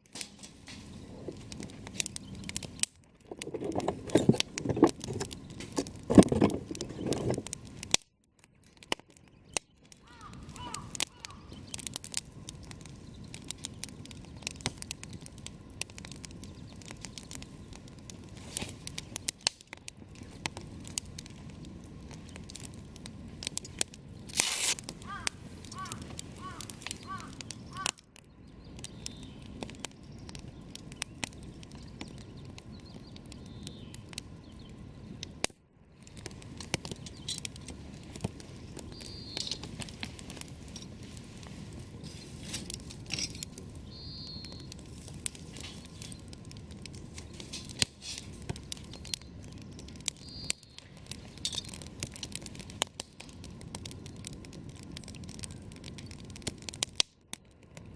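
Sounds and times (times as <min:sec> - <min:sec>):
campfire crackling and popping: 0:00.0 - 0:57.9.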